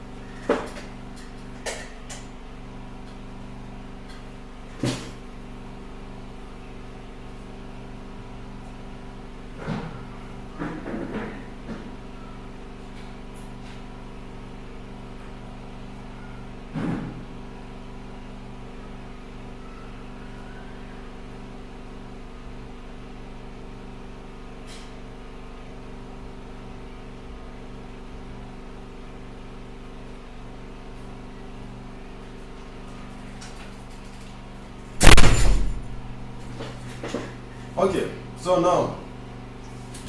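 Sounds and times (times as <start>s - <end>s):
machine hum: 34.8s - 39.4s
loud knock: 35.0s - 36.0s.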